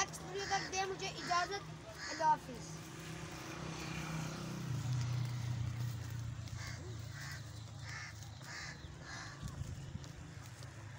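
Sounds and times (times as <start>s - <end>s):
bird cawing: 0.0s - 2.8s, 6.4s - 10.9s.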